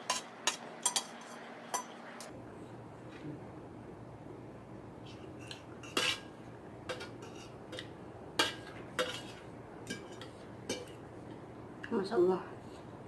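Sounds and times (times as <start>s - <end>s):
cutlery clinking on a bowl: 0.0s - 2.0s, 5.4s - 6.3s, 6.9s - 11.0s.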